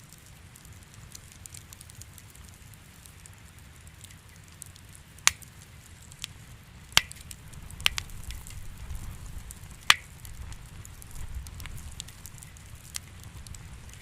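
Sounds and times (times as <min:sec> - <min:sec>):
wood fire crackling: 0:00.0 - 0:14.0
sharp pops: 0:05.2 - 0:14.0.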